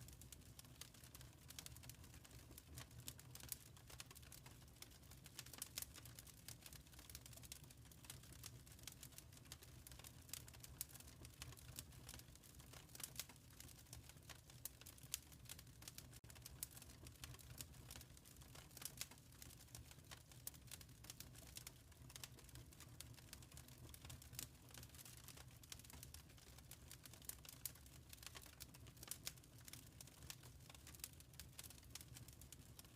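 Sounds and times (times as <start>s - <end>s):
wood fire crackling: 0.0s - 32.9s.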